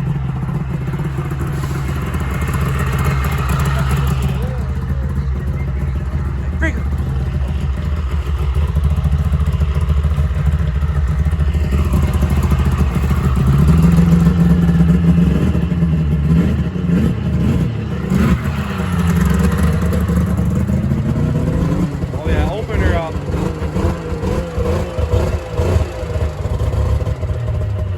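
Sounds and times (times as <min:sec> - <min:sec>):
small engine revving: 0:00.8 - 0:27.9.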